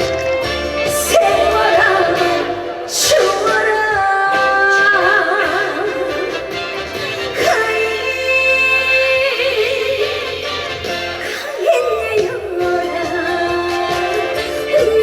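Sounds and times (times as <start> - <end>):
instrumental accompaniment: 0.0 - 15.0
woman singing with vibrato: 0.6 - 15.0.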